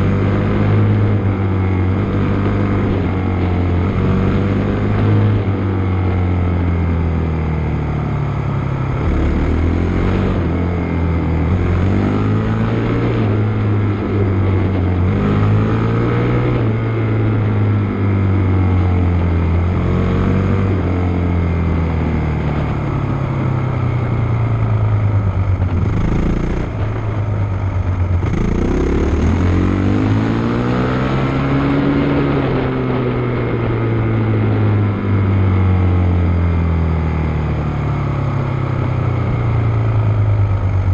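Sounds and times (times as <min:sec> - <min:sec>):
motocross bike engine revving: 0:28.2 - 0:33.0.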